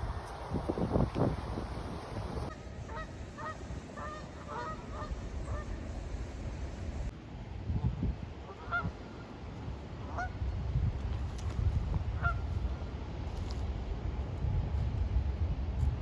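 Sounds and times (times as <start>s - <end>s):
geese honking: 2.5s - 5.7s, 8.5s - 8.9s, 10.1s - 10.3s
steady low rumble: 8.9s - 16.0s.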